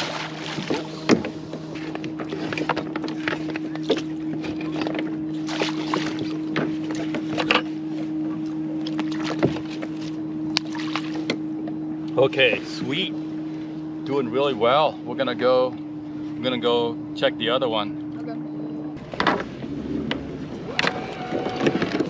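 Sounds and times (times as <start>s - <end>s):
water splashes: 0.0s - 13.7s, 19.0s - 22.0s
knocks against hull: 0.2s - 7.7s, 8.9s - 9.9s, 19.1s - 22.0s.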